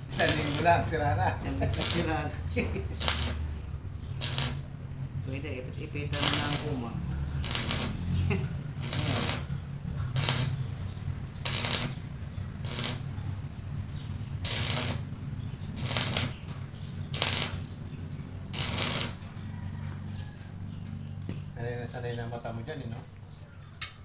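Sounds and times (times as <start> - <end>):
arc welding crackle: 0.0 - 5.4, 6.0 - 19.5
welding machine electrical hum: 0.0 - 19.6.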